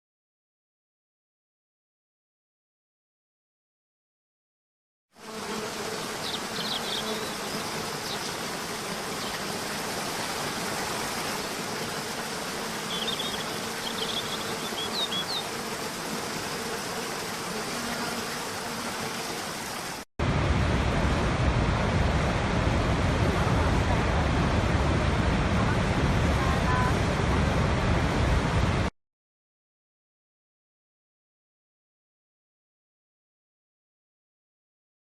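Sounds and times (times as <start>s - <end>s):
faint steady buzz: 5.2s - 20.0s.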